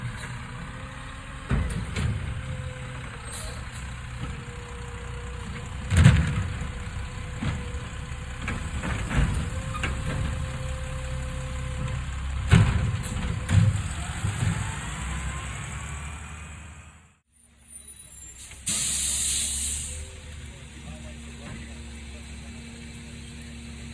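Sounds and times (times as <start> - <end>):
garbage truck engine rumbling: 0.0 - 17.3, 18.0 - 23.9
loud metallic clunks and bangs: 11.6 - 14.8.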